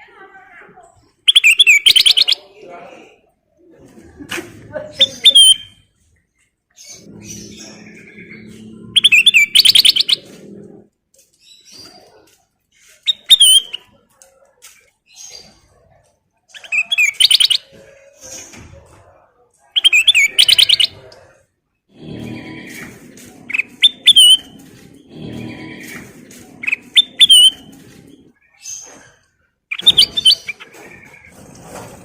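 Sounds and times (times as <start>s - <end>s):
soft bird chirps: 1.3s - 2.5s, 6.4s - 14.1s, 22.0s - 31.3s.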